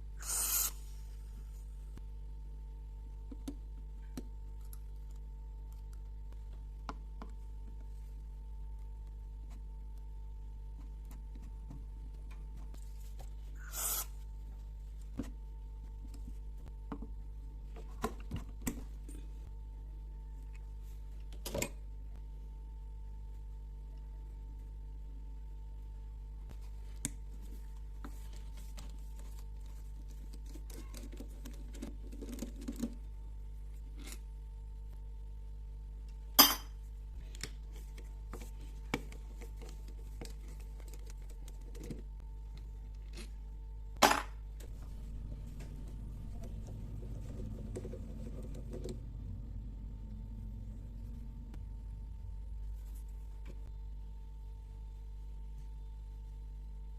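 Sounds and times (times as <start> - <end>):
low hum: 33.0 - 56.9.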